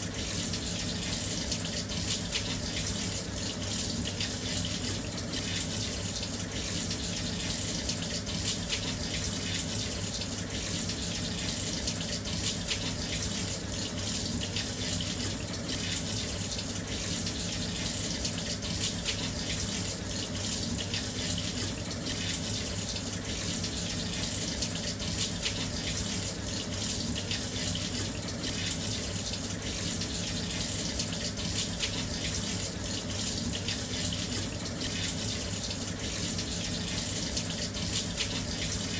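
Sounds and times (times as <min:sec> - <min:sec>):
water pouring into washing machine: 0:00.0 - 0:38.9.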